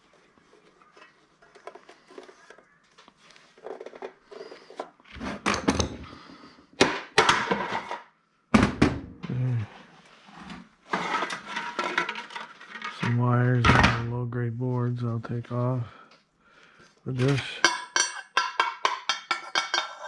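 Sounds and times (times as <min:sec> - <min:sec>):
plastic parts clicking and rattling: 0:10.9 - 0:13.2.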